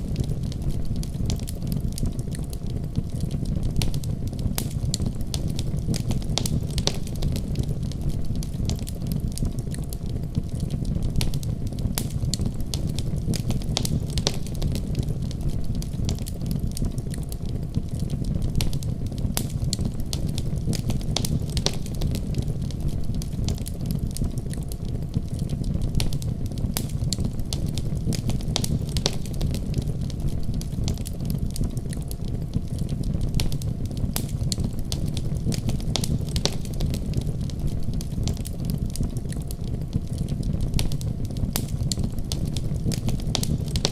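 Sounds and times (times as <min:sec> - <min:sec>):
fire crackling: 0:00.0 - 0:43.9
fire popping and snapping: 0:00.0 - 0:43.9.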